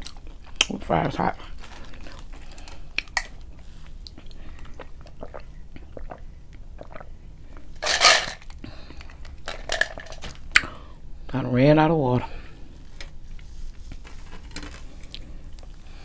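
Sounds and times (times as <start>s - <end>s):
chewing fries: 0.0s - 7.7s.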